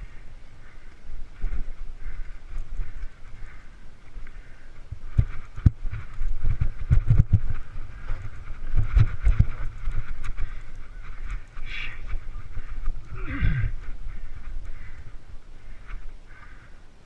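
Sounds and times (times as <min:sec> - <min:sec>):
wind on microphone: 0:00.0 - 0:16.7
mountain bike thudding and rattling: 0:00.7 - 0:16.7.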